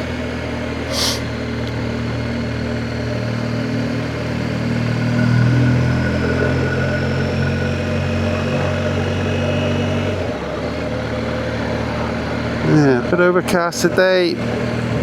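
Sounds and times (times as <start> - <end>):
motorcycle engine running: 0.0 - 15.0
short hiss: 0.9 - 1.3.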